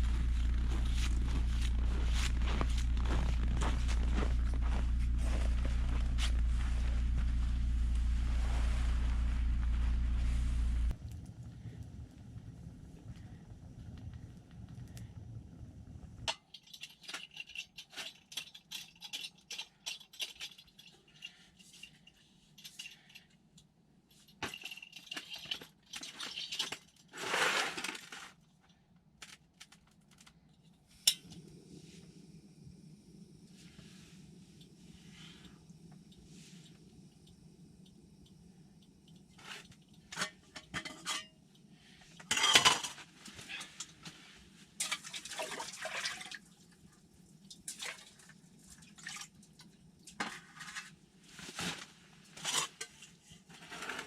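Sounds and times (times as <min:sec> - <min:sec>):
gear clinking and scraping: 0:00.0 - 0:11.0
steady low hum: 0:00.0 - 0:16.3, 0:30.9 - 0:44.9.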